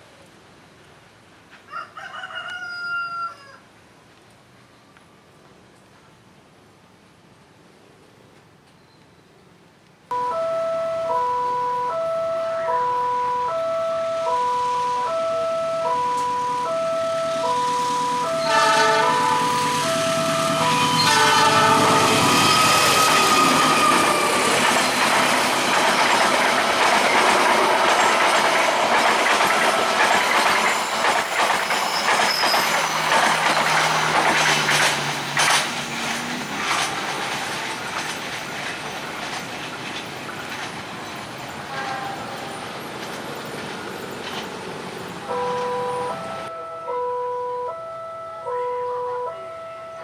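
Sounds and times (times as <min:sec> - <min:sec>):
high wheel squeals: 0:11.3 - 0:42.7
train wheels clattering: 0:15.9 - 0:45.8.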